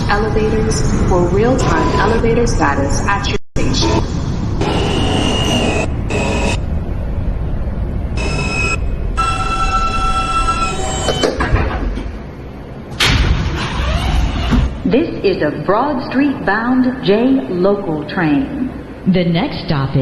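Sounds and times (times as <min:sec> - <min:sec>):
high whining tones: 0:00.0 - 0:11.6
subway train rumble: 0:00.0 - 0:20.0.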